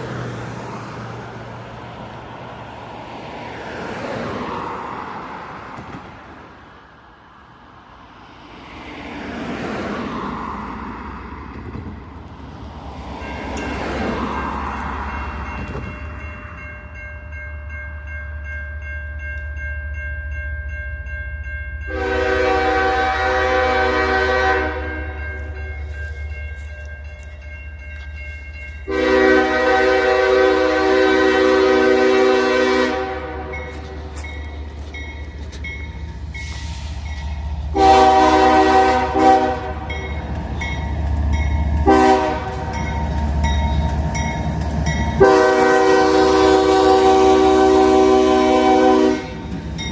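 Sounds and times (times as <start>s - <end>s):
locomotive air horn blasts: 21.9s - 25.2s, 28.9s - 34.1s, 37.7s - 40.1s, 41.8s - 42.8s, 45.2s - 49.5s.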